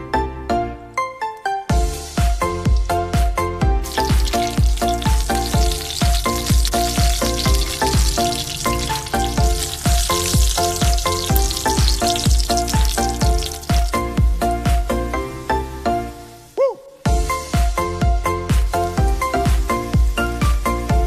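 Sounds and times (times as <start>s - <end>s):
music with steady beat: 1.7s - 15.3s, 17.1s - 21.0s
food sizzling in oil: 1.8s - 3.0s, 3.8s - 14.2s.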